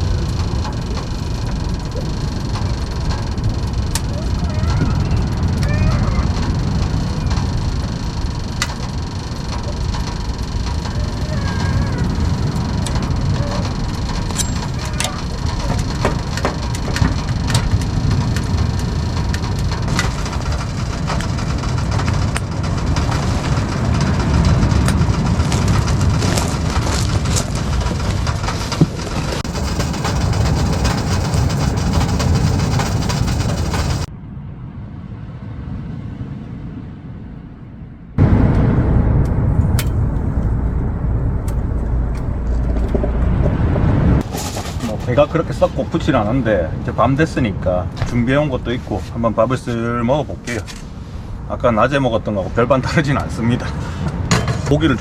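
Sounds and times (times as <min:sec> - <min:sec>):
firewood crackling and popping: 0:00.0 - 0:34.1
low rushing of fire: 0:00.0 - 0:37.6, 0:38.2 - 0:55.0.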